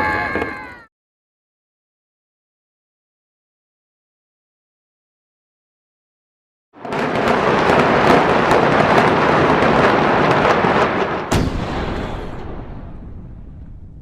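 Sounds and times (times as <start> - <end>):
crackling debris: 6.8 - 14.0
explosion blast and rumble: 6.8 - 14.0
sharp crack: 6.8 - 14.0.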